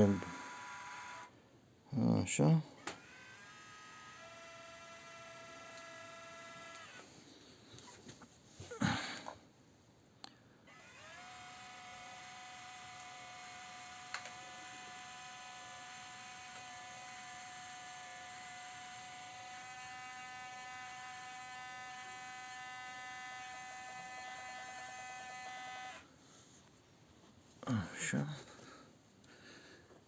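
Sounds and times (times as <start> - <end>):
small electric motor whining: 0.0 - 1.3, 2.8 - 7.1, 10.7 - 26.1.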